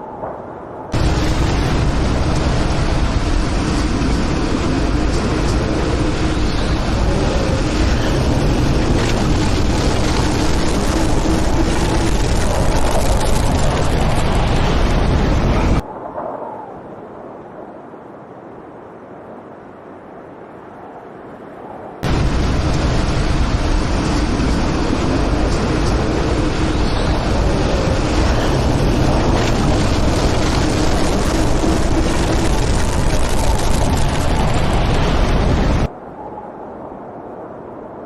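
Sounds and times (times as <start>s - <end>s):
tornado rushing noise: 0.9s - 15.9s, 22.0s - 36.0s.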